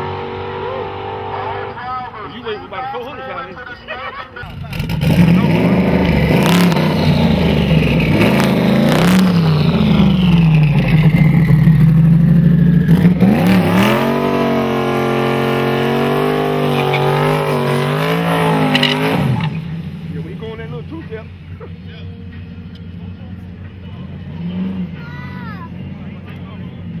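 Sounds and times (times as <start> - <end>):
car burnout at high revs: 0.0 - 2.1, 4.4 - 20.9
car engine revving: 0.0 - 2.8, 4.4 - 27.0.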